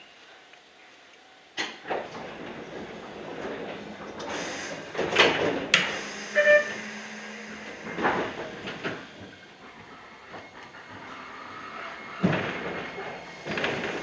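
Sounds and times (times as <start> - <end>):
rail clatter: 1.6 - 14.0
electric train running: 1.9 - 14.0
short beep: 6.2 - 7.0.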